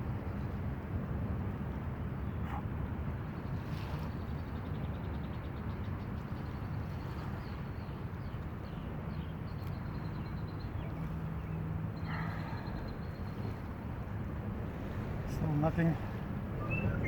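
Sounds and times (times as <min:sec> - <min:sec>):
lakeshore water: 0:00.0 - 0:17.0
wind: 0:00.0 - 0:17.0
bird chirps: 0:16.6 - 0:17.0.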